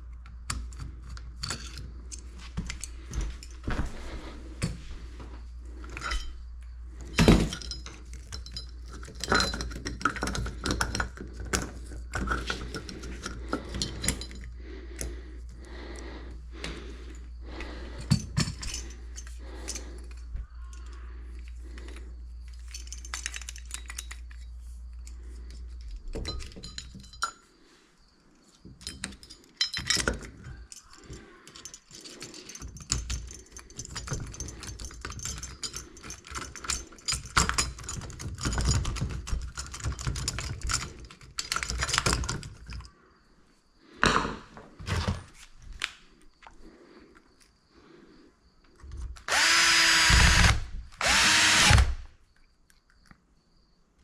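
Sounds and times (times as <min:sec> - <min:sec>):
dishes and metal clinking: 0:07.1 - 0:14.6.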